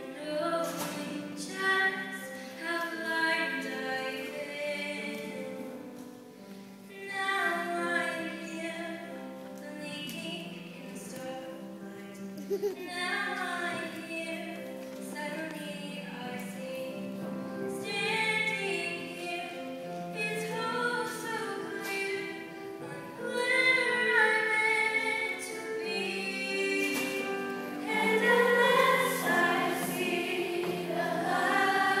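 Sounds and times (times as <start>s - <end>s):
choir singing: 25.7s - 32.0s.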